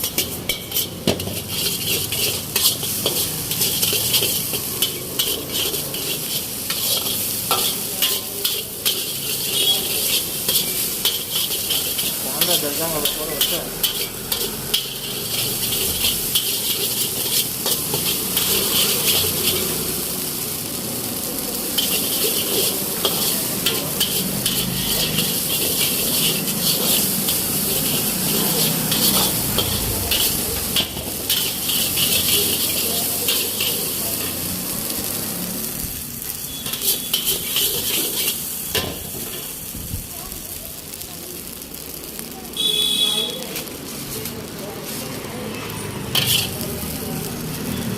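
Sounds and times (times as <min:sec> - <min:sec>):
metal spatula scraping a pan: 0:00.0 - 0:19.9, 0:21.7 - 0:35.0, 0:36.2 - 0:39.5, 0:46.1 - 0:46.7
rice sizzling in a wok: 0:00.0 - 0:47.9.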